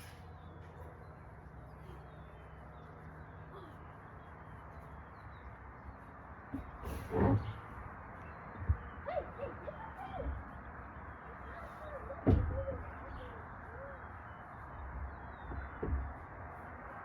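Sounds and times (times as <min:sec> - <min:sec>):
thump: 0:12.2 - 0:12.7, 0:15.5 - 0:16.2.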